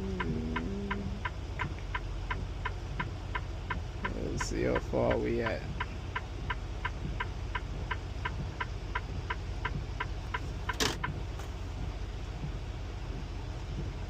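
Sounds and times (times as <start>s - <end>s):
diesel engine idling: 0.0s - 14.0s
truck indicator clicking: 0.1s - 11.2s.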